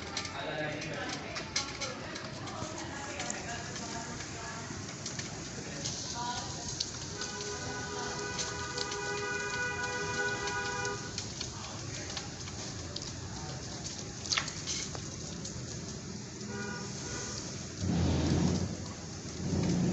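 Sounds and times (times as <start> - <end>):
rain hissing: 0.0 - 19.9
thunder rumbling: 16.1 - 19.9.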